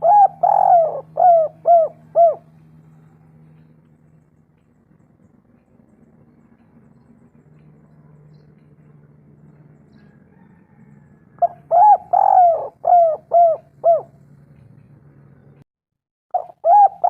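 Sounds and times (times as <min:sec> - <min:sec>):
dove cooing: 0:00.0 - 0:02.6, 0:10.0 - 0:14.3, 0:16.3 - 0:17.0
faint low hum: 0:00.0 - 0:15.6.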